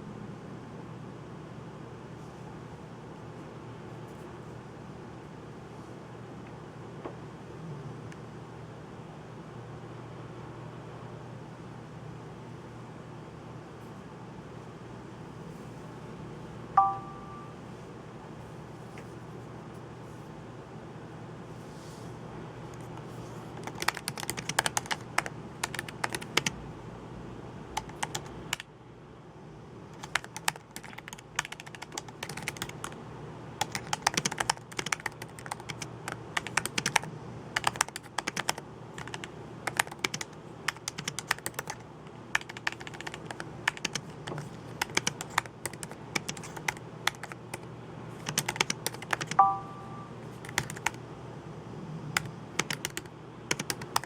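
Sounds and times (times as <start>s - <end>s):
rising three-note electronic chime: 16.8s - 17.6s, 49.4s - 50.2s
typing on computer keyboard: 23.6s - 26.6s, 27.8s - 28.7s, 30.0s - 33.0s, 33.6s - 49.6s, 50.4s - 51.0s, 52.2s - 54.0s.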